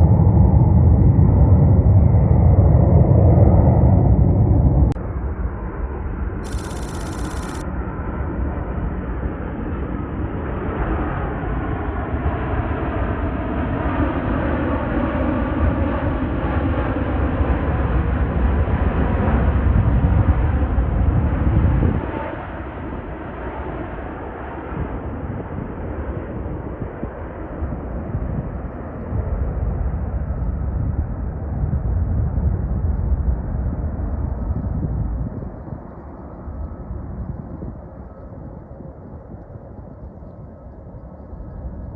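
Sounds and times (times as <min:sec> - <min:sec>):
jet airliner passing: 0:00.0 - 0:07.6
jet engine whine: 0:00.0 - 0:19.5.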